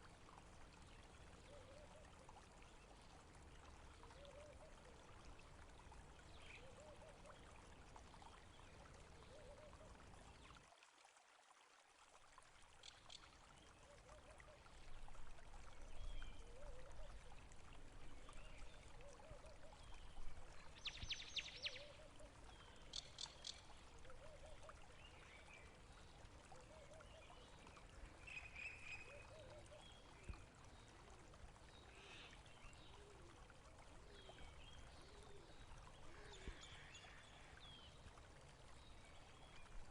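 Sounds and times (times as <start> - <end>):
water trickling and gurgling: 0.0 - 39.9
bird calls and chirps: 18.2 - 25.7.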